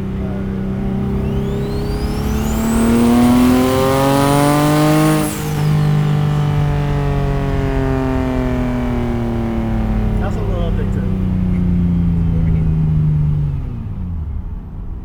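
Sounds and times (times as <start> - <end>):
car engine accelerating: 0.0 - 15.0
turbo whistle: 0.8 - 6.9.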